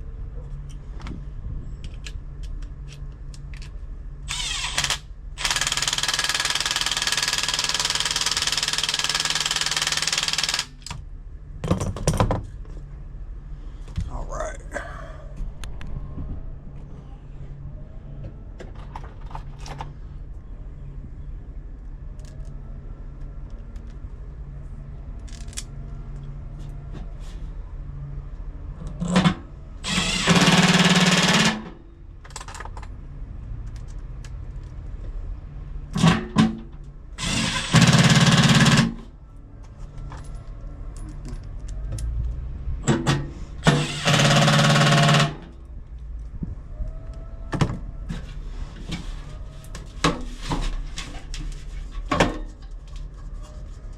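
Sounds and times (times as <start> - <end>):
power tool running: 4.3 - 10.9, 29.8 - 31.6, 37.2 - 38.9, 43.7 - 45.4
steady low hum: 10.4 - 28.8.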